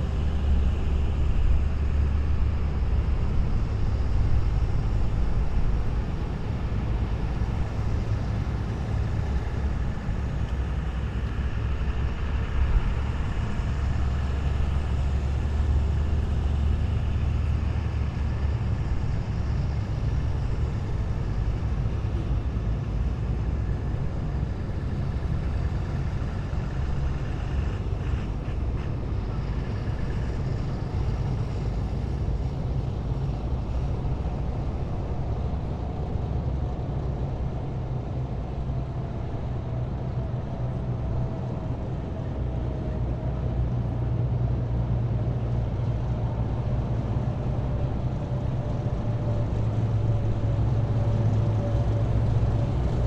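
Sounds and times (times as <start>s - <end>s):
heavy vehicles driving past: 0.0s - 53.0s.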